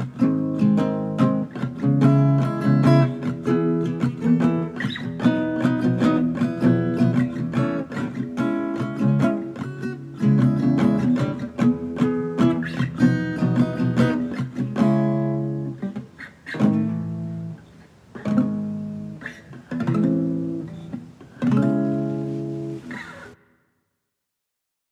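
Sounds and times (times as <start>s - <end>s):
acoustic guitar strumming chords: 0.0s - 23.4s.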